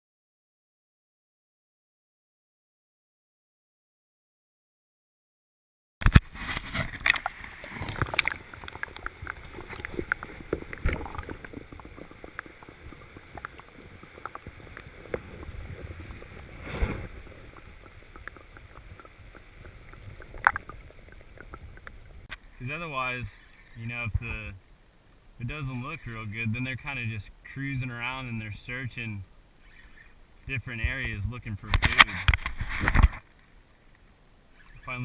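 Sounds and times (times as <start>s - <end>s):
water sloshing against hull: 6.0s - 22.7s.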